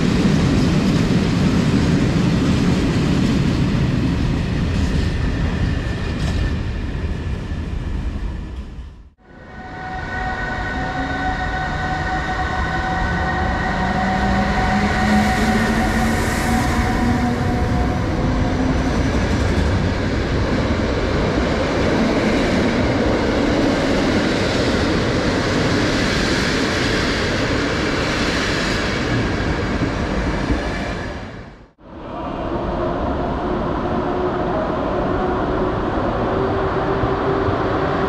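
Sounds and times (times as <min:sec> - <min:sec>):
train whining tones: 0:04.7 - 0:38.0
rising drone: 0:09.2 - 0:24.0, 0:31.8 - 0:38.0.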